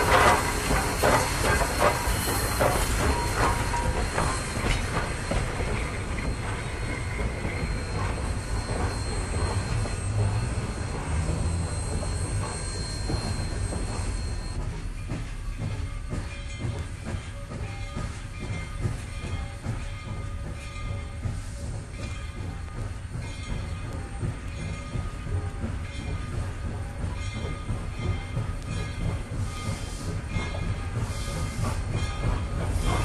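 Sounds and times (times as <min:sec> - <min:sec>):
train wheels clattering on track: 0:00.0 - 0:33.0.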